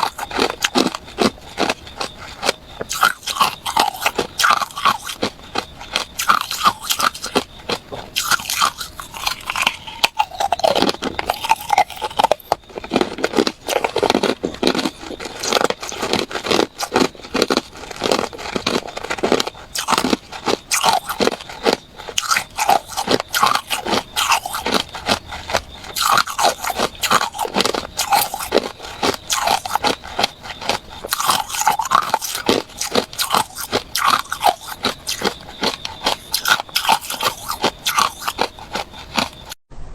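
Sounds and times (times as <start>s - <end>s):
ice being chewed: 0.0s - 39.6s.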